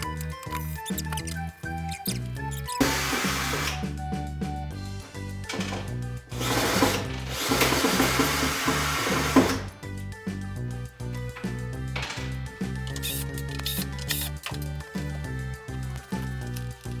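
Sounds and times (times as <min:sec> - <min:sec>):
background music with bass: 0:00.0 - 0:17.0
power drill running: 0:02.8 - 0:03.8, 0:06.3 - 0:09.6.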